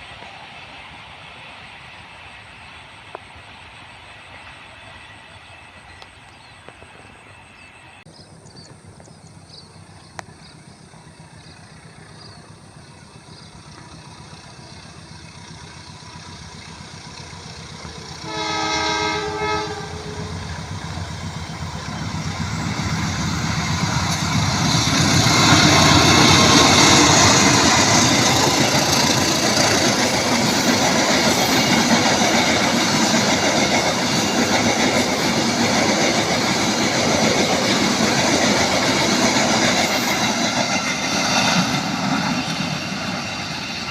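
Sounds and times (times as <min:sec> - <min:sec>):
train rumble passing: 0:00.0 - 0:43.9
train horn blast: 0:18.2 - 0:20.6.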